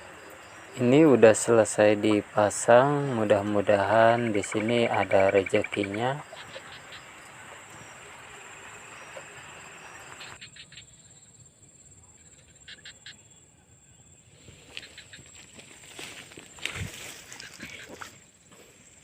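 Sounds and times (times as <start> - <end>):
crickets droning: 0.0 - 19.0
noisy rustle: 14.3 - 18.8.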